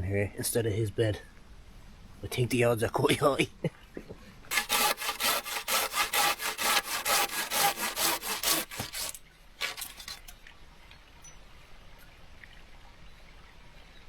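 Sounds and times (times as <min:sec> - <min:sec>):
hand saw cutting wood: 0:04.5 - 0:10.3.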